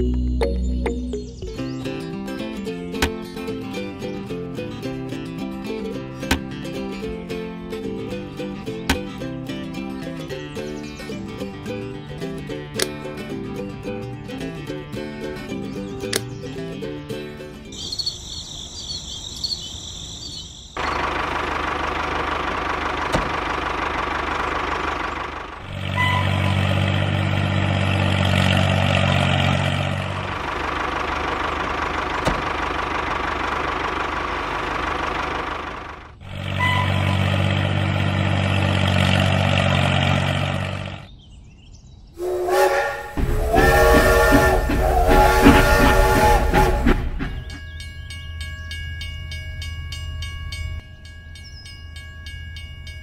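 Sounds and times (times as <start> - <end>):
steam locomotive chuffing: 20.8 - 40.6, 42.2 - 48.1
train running: 20.8 - 40.9, 42.2 - 53.0
low train whistle blast: 42.2 - 47.6.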